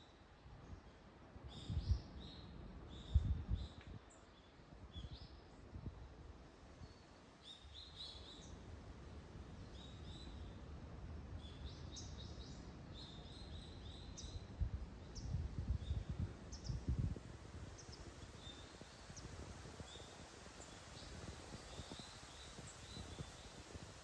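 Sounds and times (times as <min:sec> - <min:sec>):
small birds chirping: 0:17.7 - 0:24.0.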